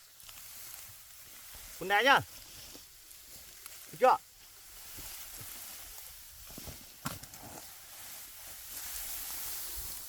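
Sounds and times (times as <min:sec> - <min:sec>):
steady outdoor hiss: 0:00.0 - 0:10.0.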